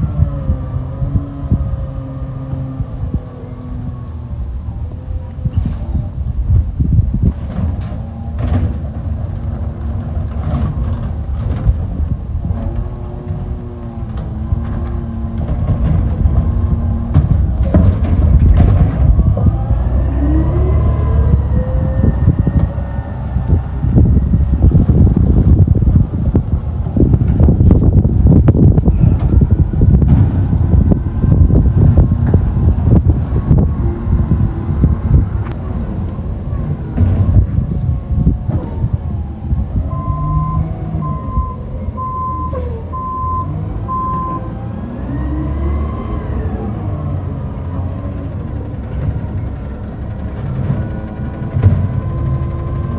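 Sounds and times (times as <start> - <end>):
whine rising in pitch: 0.0 - 6.4, 11.8 - 50.0
garbage truck engine rumbling: 0.0 - 52.9
backup alarm beeping: 37.7 - 45.4.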